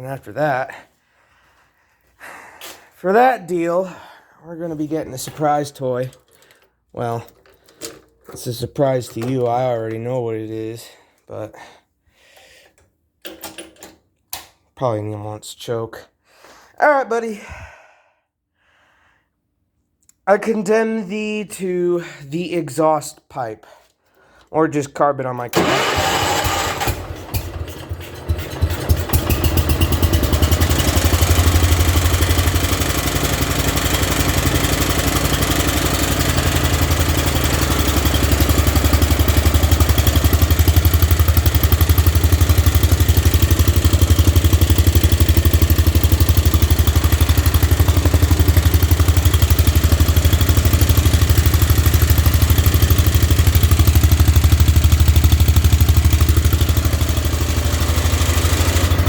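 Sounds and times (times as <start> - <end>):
single-cylinder engine running: 25.5 - 59.0.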